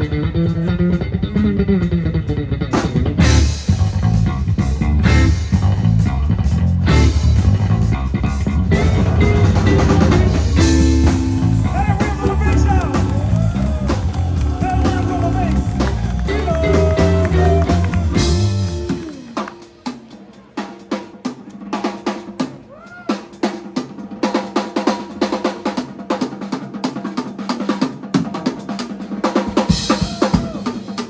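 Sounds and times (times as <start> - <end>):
electric bass: 0.0 - 19.4
electric blues band playing: 0.0 - 31.0
electric guitar bending notes: 6.3 - 19.5.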